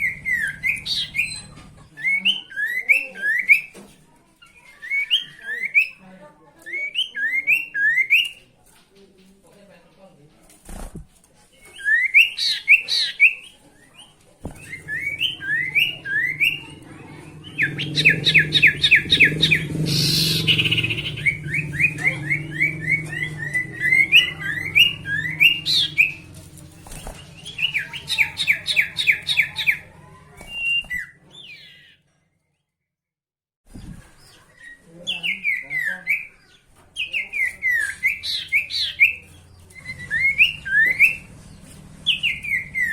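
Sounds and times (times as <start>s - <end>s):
songbird singing: 0.0s - 3.8s, 11.6s - 32.1s, 33.8s - 42.9s.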